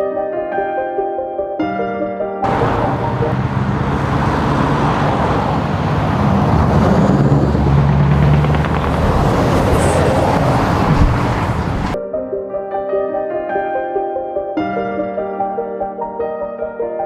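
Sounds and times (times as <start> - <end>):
soft piano music: 0.0 - 5.6, 10.2 - 17.0
truck diesel engine running: 2.5 - 12.0.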